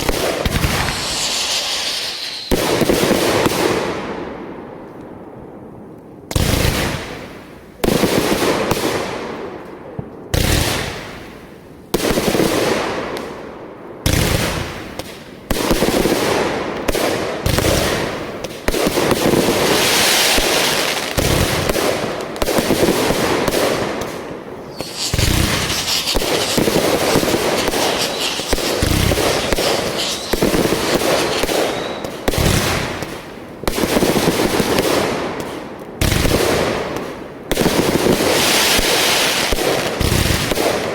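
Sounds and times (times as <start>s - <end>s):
rapid fireworks popping: 0.0s - 3.8s, 24.6s - 35.1s
fireworks bangs: 0.0s - 4.7s, 19.0s - 35.1s.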